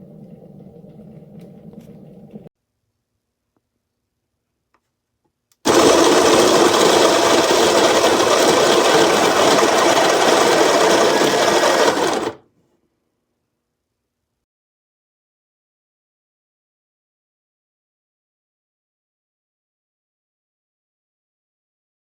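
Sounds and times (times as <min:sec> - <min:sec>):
coffee grinder motor running: 0:05.7 - 0:12.4.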